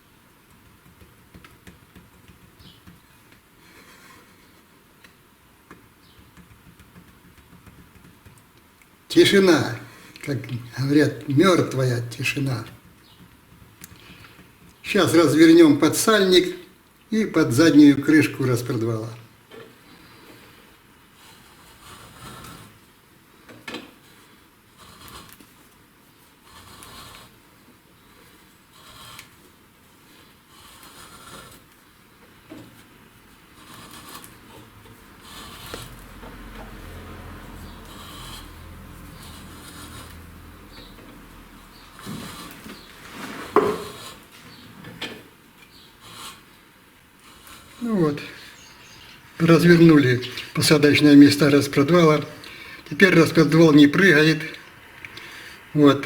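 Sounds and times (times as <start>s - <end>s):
faint metal scraping: 32.3s - 46.5s.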